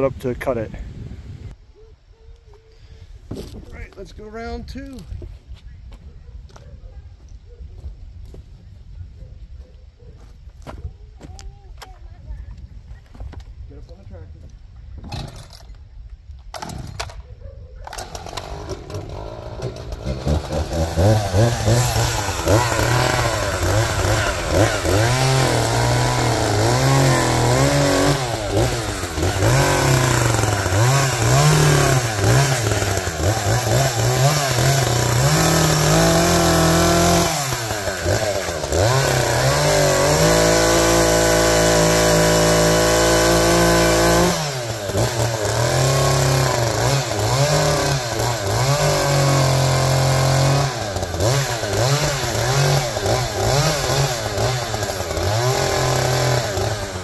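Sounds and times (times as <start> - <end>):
engine running loud: 18.4 - 57.0.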